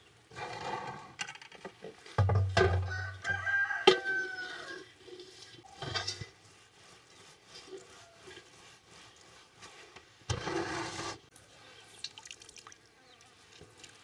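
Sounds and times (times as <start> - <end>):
rooster crowing: 2.8 - 4.8.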